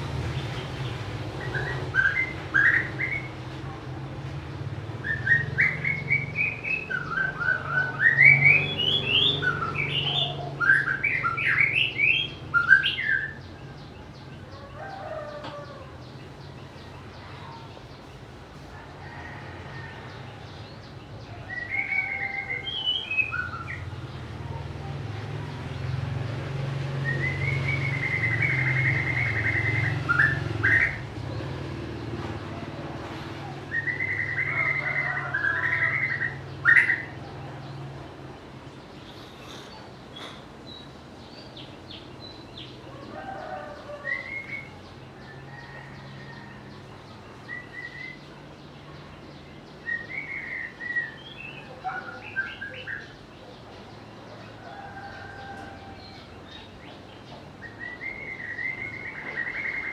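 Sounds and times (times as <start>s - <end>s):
bird singing whistled notes: 1.4s - 3.3s, 5.0s - 13.6s, 21.5s - 24.0s, 27.0s - 31.0s, 33.7s - 37.2s, 44.1s - 44.9s, 47.5s - 48.3s, 49.8s - 53.2s, 57.6s - 59.9s.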